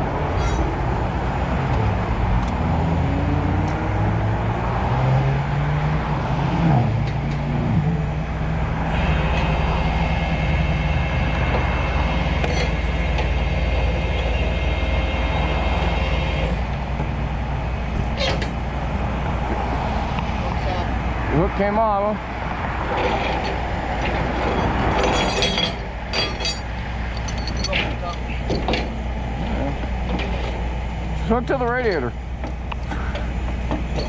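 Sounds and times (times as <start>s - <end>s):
truck engine running: 6.8s - 34.0s.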